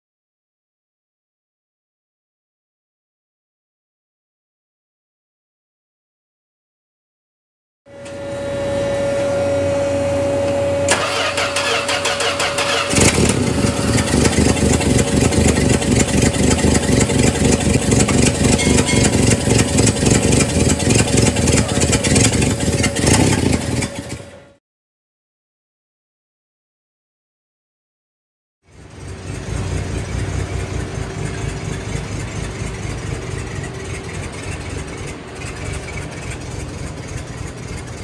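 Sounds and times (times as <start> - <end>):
car engine cranking and running: 10.2 - 24.6, 28.7 - 38.0.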